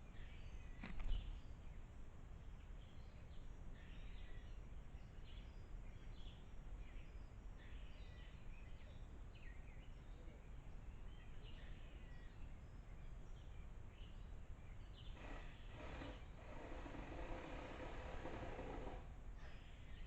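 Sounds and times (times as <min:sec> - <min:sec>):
birds chirping and calling: 0:14.0 - 0:18.0.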